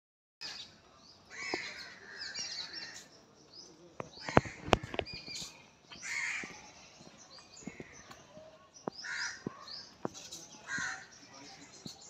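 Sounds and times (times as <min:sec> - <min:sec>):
birds chirping: 0:00.4 - 0:12.0
harsh bird call: 0:04.1 - 0:06.8, 0:09.0 - 0:11.9.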